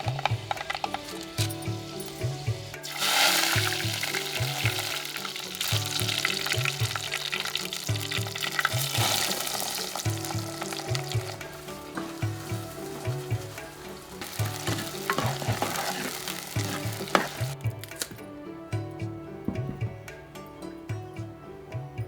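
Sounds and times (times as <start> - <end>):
food frying in hot oil: 0.0 - 17.6
background music with pulsing beat: 0.0 - 22.0.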